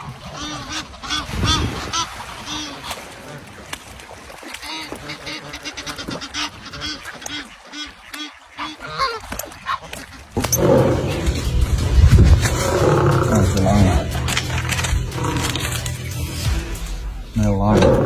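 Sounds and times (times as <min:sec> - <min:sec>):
waterfowl honking and quacking: 0:00.0 - 0:11.0.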